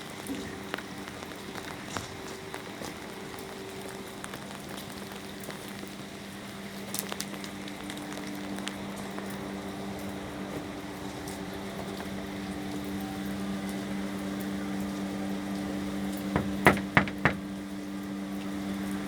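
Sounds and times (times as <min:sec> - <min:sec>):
steady rain: 0:00.0 - 0:16.2
sharp knocks: 0:16.4 - 0:17.6.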